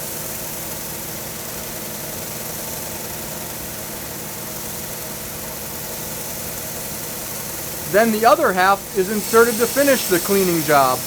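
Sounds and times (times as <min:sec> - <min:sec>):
wire brushes scrubbing metal: 0:07.9 - 0:11.0.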